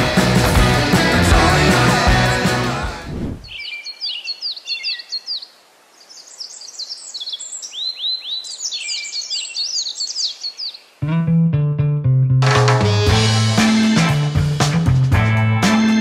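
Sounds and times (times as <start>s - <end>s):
small birds chirping: 3.4s - 11.0s.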